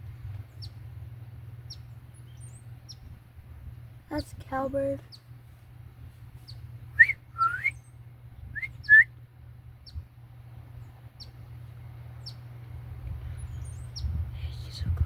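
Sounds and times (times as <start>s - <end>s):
faint high bird peeps: 6.4s - 9.1s, 13.3s - 14.8s
birds whistling rising notes: 6.5s - 9.1s, 13.3s - 14.2s.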